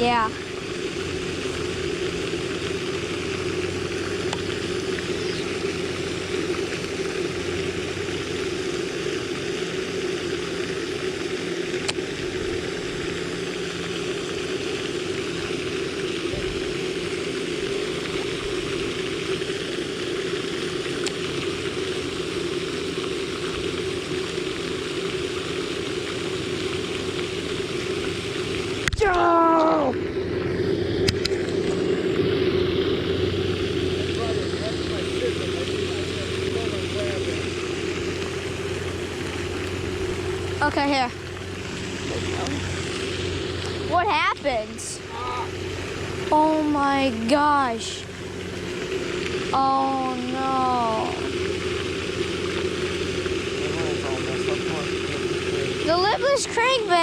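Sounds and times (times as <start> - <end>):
steady rushing noise: 29.8 - 57.0.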